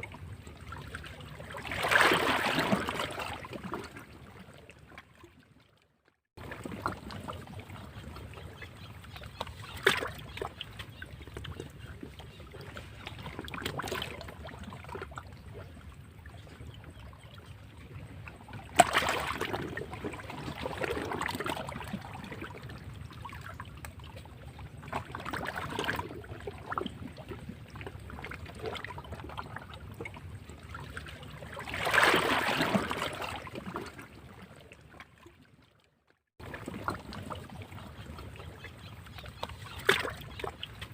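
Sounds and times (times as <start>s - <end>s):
sea waves breaking against rocks: 1.3s - 4.0s, 18.7s - 22.6s, 31.6s - 34.0s.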